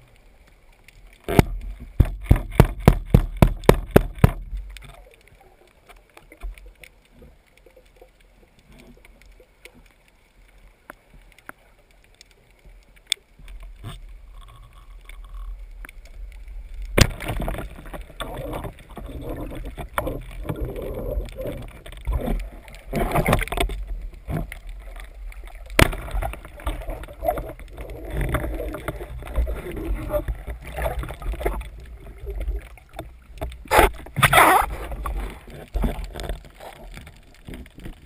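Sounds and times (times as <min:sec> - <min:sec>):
sharp clicks underwater: 0:00.0 - 0:38.0
water splashing and gurgling: 0:00.0 - 0:38.0.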